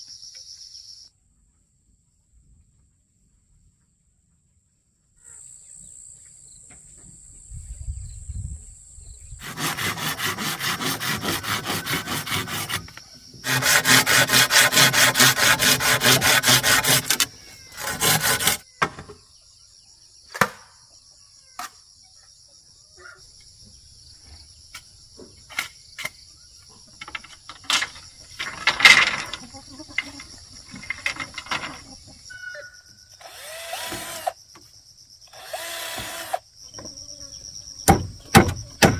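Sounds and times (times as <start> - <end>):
insects droning: 4.7 - 38.9
saw cutting wood: 9.4 - 18.6, 33.2 - 34.4, 35.3 - 36.4.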